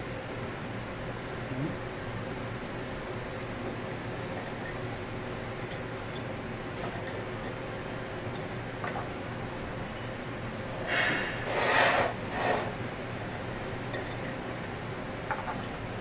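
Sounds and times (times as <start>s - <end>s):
scraping rubs on metal parts: 10.8s - 12.8s.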